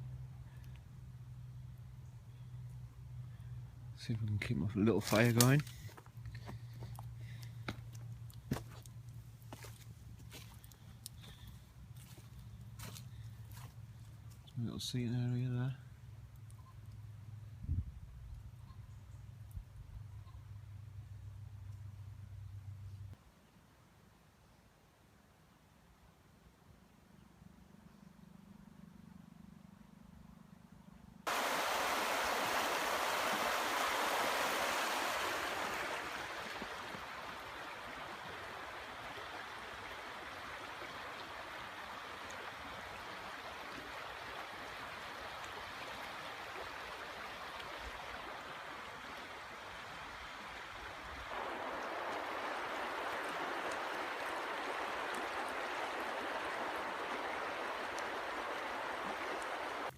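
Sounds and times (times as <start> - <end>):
river water rushing: 31.3 - 59.9.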